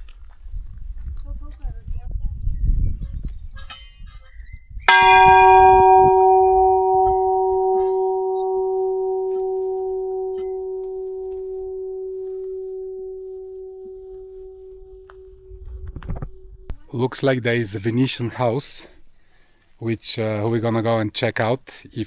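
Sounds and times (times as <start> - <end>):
church bell ringing: 4.9 - 15.8.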